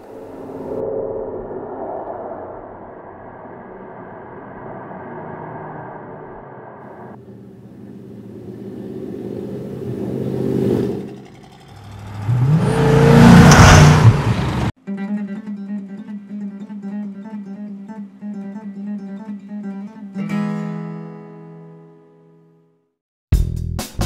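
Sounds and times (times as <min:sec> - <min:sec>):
car engine revving: 0:03.9 - 0:14.8
strummed guitar music: 0:14.8 - 0:22.6.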